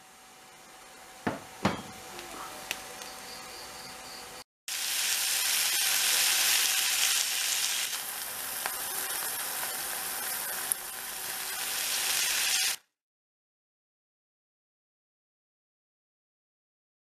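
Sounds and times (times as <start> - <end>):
meat sizzling in oil: 4.7 - 12.9.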